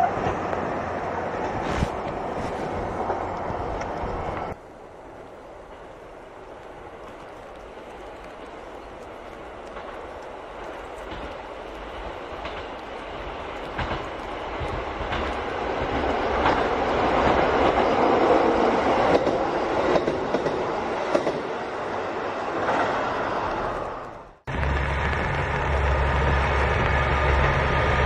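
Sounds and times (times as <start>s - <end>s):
clickety-clack over rail joints: 0.0s - 4.6s, 5.5s - 21.7s
diesel railcar engines running: 0.0s - 28.0s
wheels rumbling on rail: 0.0s - 28.0s.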